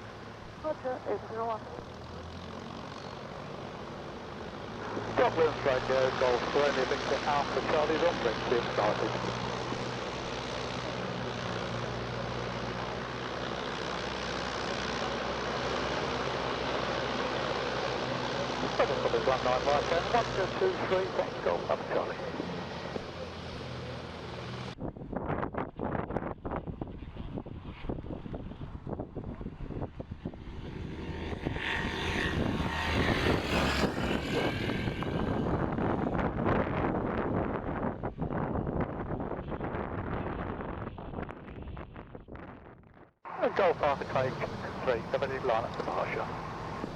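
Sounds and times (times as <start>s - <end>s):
light aircraft engine running: 0.0s - 42.7s, 43.3s - 46.9s
wind buffeting microphone: 24.8s - 43.1s.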